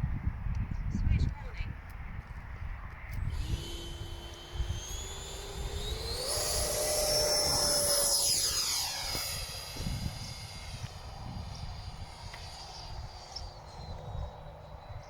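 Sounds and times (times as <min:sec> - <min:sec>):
wind buffeting microphone: 0:00.0 - 0:15.0
model jet fan whine: 0:03.2 - 0:15.0.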